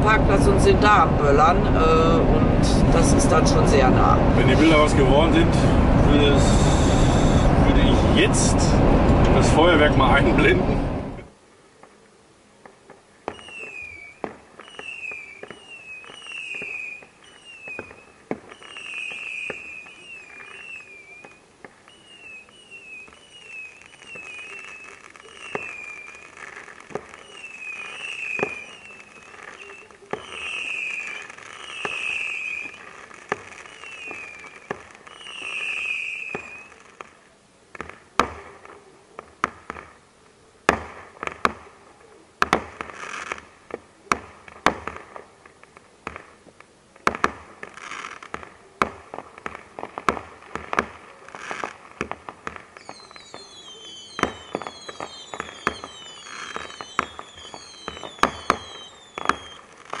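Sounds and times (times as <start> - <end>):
firework bangs and cracks: 0.0 - 11.2, 12.6 - 40.0, 40.6 - 41.8, 42.4 - 60.0
whistling rockets: 2.6 - 10.6, 13.2 - 40.0, 47.0 - 60.0
falling firework whistles: 6.3 - 7.9, 13.2 - 37.2, 42.7 - 43.5, 47.2 - 60.0.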